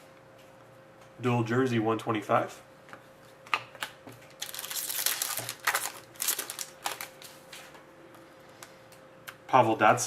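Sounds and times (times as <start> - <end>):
plastic packaging crinkling: 3.8 - 7.4.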